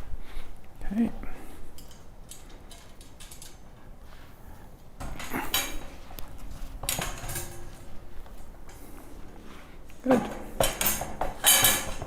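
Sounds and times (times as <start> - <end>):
metallic clattering and scraping: 5.0 - 12.0.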